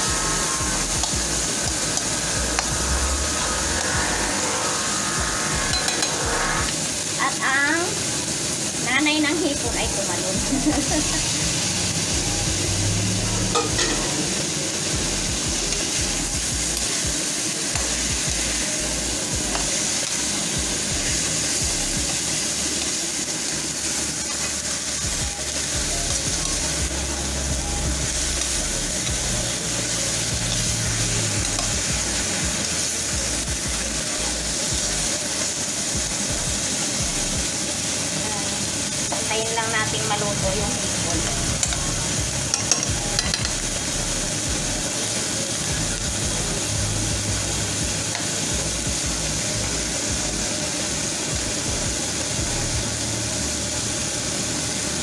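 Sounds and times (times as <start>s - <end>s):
food sizzling in a wok: 0.0s - 55.0s
metal spatula stirring: 42.5s - 43.6s.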